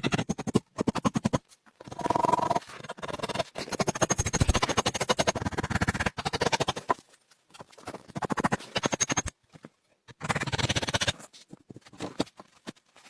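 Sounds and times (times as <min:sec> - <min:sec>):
short scrapes and clicks: 0:00.0 - 0:07.0, 0:07.6 - 0:09.3
rough scraping of fast clicks: 0:00.0 - 0:09.4, 0:10.1 - 0:13.0.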